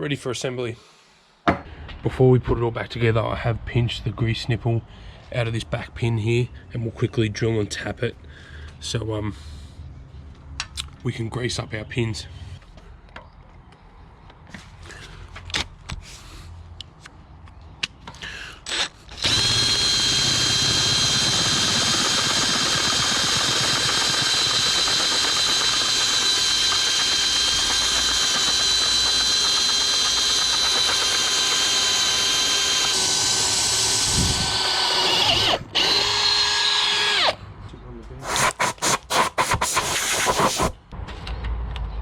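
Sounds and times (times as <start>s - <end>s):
electric drill whining: 18.6s - 37.4s.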